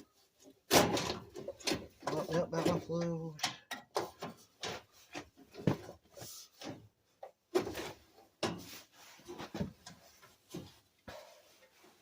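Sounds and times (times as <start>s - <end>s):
knocks and clunks of hardware: 0.7s - 6.0s.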